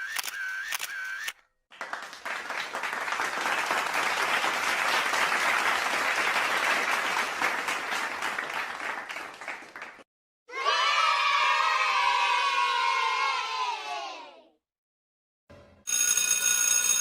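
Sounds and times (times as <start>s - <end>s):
crowd applause: 1.7s - 10.1s.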